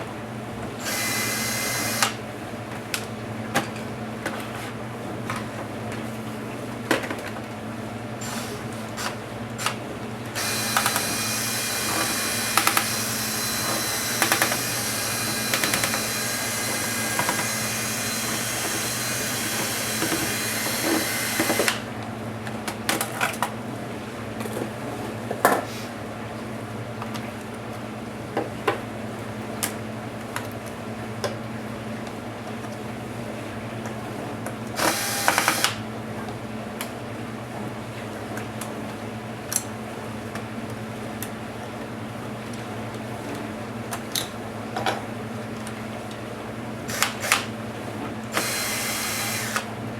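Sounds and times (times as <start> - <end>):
electric screwdriver whirring: 0.8 - 2.2, 10.4 - 21.9, 34.8 - 35.8, 46.9 - 47.5, 48.3 - 49.7.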